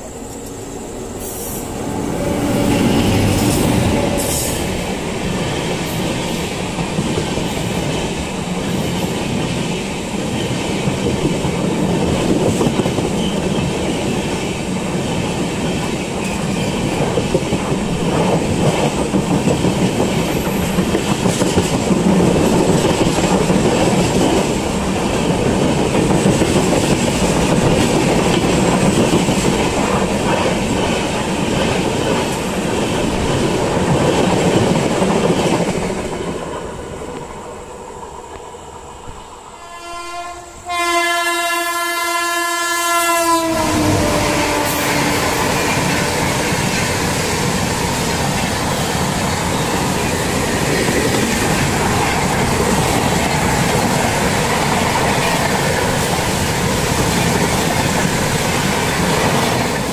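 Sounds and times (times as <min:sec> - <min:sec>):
train wheels clattering over rail joints: 0:02.8 - 0:36.3.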